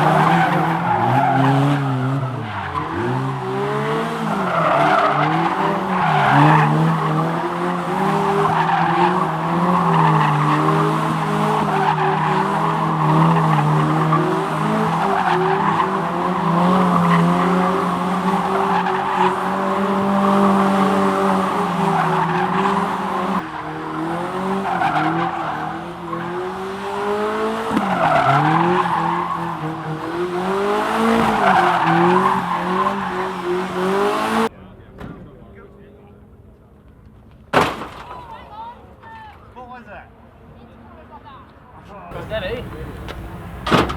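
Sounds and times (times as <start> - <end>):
rally car engines revving: 0.0 - 36.6, 40.2 - 43.9.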